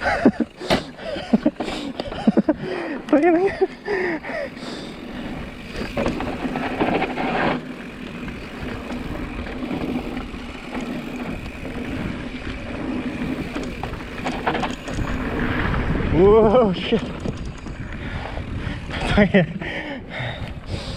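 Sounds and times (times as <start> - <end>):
bike rattling over bumps: 0.0 - 20.9
bike tyre noise: 0.0 - 20.9
wind on microphone: 13.1 - 19.4, 20.1 - 20.9.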